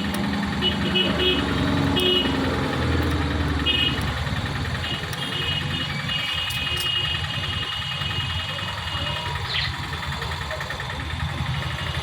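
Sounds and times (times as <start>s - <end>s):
engine running with low pulsing: 0.0s - 12.0s.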